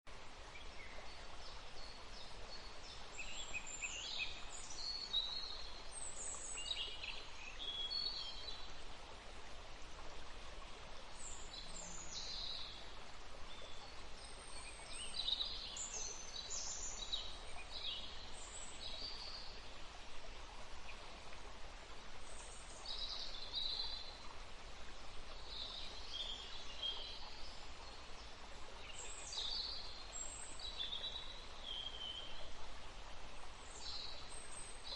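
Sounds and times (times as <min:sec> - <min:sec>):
stream flowing: 0:00.1 - 0:34.9.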